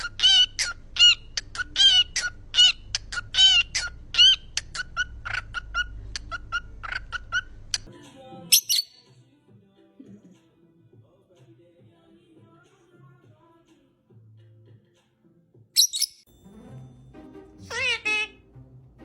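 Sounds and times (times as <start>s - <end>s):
parrot shrill squawk: 0.0s - 7.5s, 8.5s - 9.0s, 15.8s - 16.2s, 17.6s - 18.4s
parrot repeated calls: 0.0s - 7.9s, 15.8s - 16.2s, 17.6s - 18.4s.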